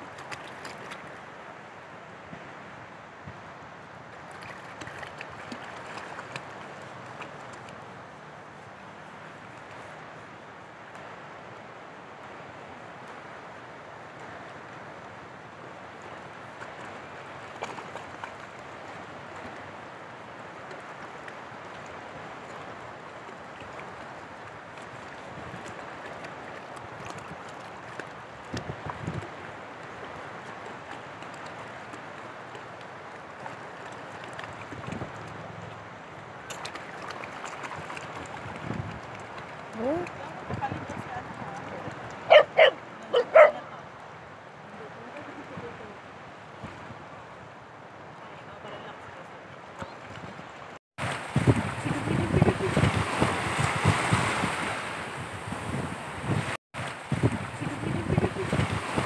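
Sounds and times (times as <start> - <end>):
seawater lapping: 0.0 - 2.5, 3.8 - 11.6, 12.3 - 59.0
shallow water washing: 0.0 - 59.0.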